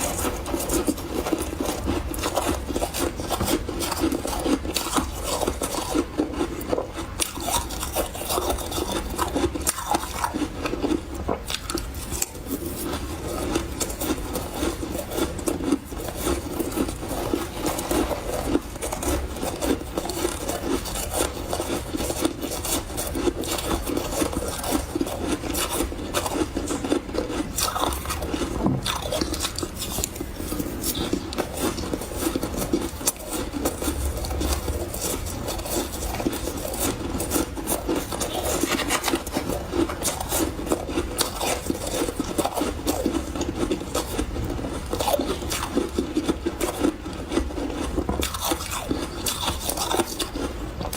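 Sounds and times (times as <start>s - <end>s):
chewing crunchy ice: 0.0s - 50.9s.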